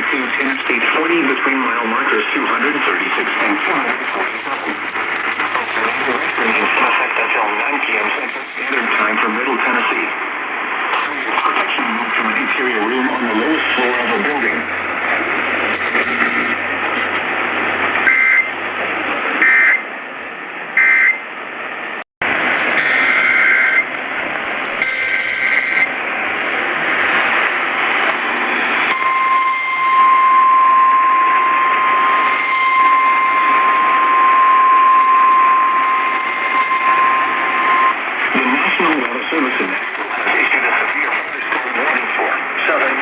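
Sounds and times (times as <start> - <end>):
radio hiss: 0.0 - 19.9, 22.2 - 43.0
steady alarm tone: 13.3 - 18.7, 19.4 - 19.9, 20.8 - 21.3, 22.4 - 26.9, 28.8 - 38.0
harsh digital data bursts: 15.6 - 16.6, 22.8 - 23.9, 24.8 - 25.9.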